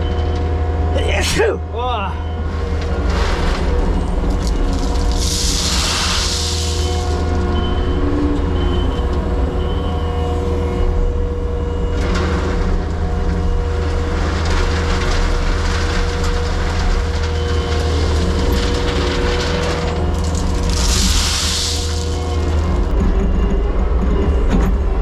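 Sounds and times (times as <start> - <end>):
diesel engine rumble: 0.0 - 25.0
hydraulic whine: 2.2 - 14.4.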